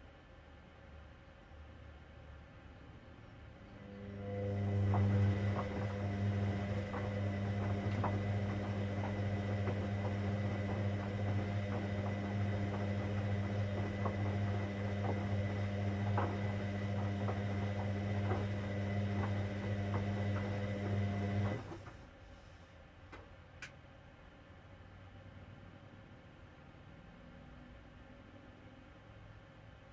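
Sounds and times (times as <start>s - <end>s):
washing machine humming: 3.6s - 22.4s.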